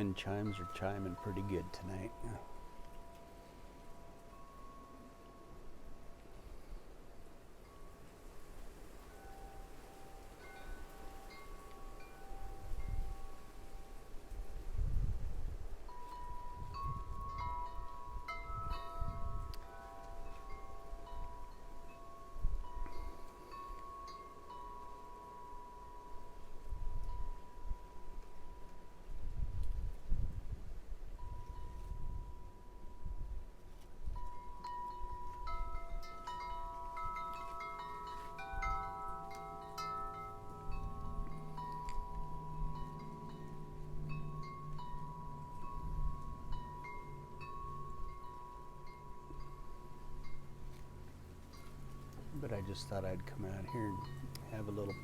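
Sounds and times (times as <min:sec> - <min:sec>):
wind chimes ringing: 0:00.0 - 0:29.6, 0:31.2 - 0:55.0
wind rumbling on microphone: 0:00.0 - 0:55.0.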